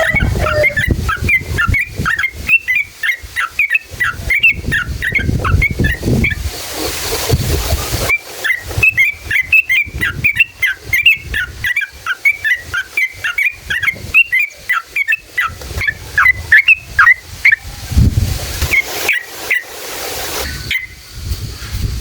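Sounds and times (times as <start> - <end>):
low rumbling noise: 0.0 - 2.0
bulbul singing bubbly whistles: 0.0 - 6.5, 7.6 - 17.7, 18.7 - 19.7, 20.6 - 21.0.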